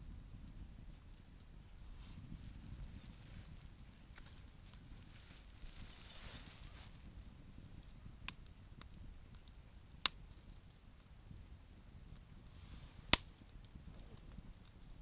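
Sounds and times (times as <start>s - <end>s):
faint campfire crackles: 0.0s - 15.0s
sharp wood pops: 13.1s - 13.5s.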